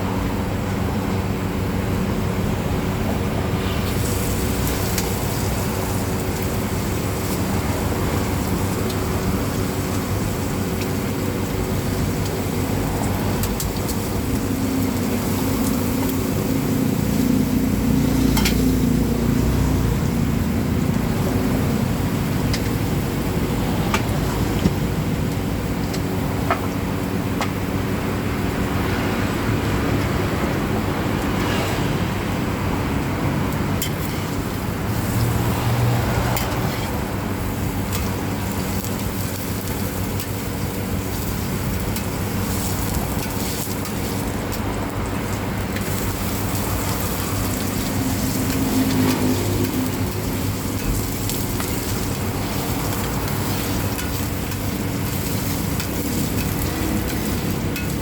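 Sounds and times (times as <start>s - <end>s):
traffic rumble: 0.0s - 58.0s
omelette sizzling in oil: 3.4s - 23.4s, 33.5s - 58.0s.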